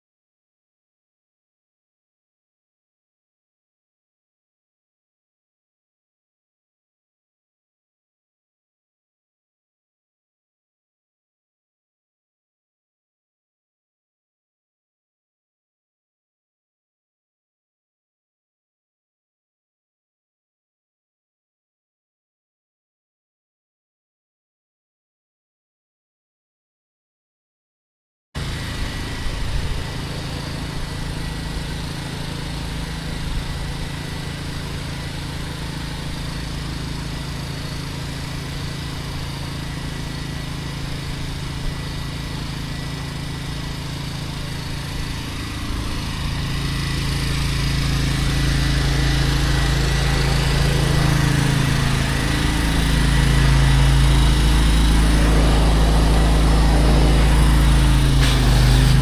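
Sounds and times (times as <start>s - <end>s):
small gasoline engine running: 28.4s - 59.0s.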